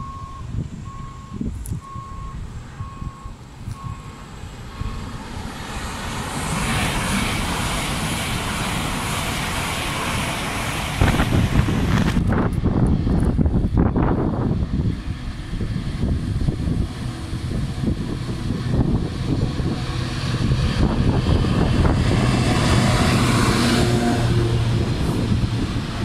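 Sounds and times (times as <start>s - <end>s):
reversing alarm beeps: 0.0s - 5.2s
wind buffeting microphone: 0.0s - 26.0s
high-speed train rushing past: 2.4s - 26.0s.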